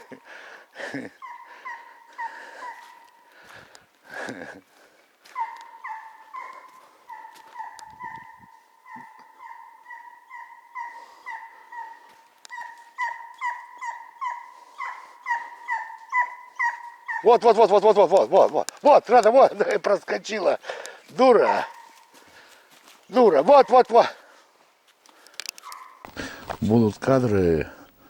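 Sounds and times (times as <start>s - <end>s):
animal whining cries: 5.4s - 17.5s.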